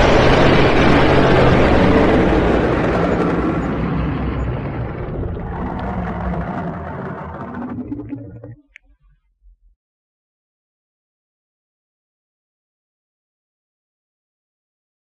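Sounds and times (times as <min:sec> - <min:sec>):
dragon rough rumble: 0:00.0 - 0:08.8.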